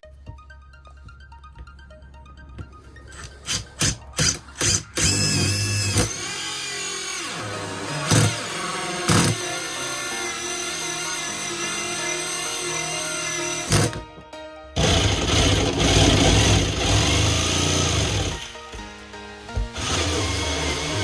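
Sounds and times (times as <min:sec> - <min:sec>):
background music: 0:00.0 - 0:21.0
power tool running on metal: 0:03.2 - 0:14.1, 0:14.8 - 0:18.9, 0:19.6 - 0:21.0.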